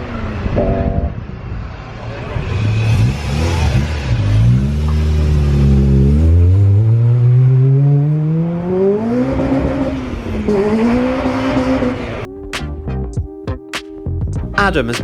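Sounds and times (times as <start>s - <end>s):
car engine accelerating hard: 0.0s - 12.3s.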